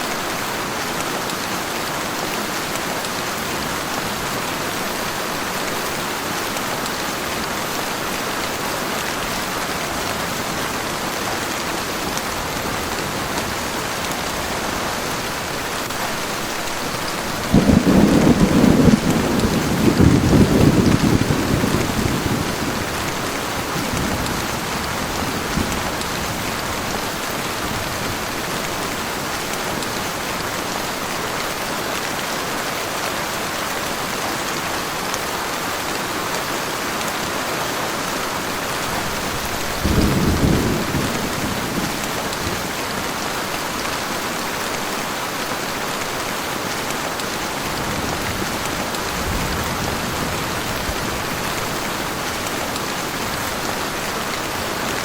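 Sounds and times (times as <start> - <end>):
heavy rain: 0.0 - 55.0
thunder rumble: 17.3 - 26.4.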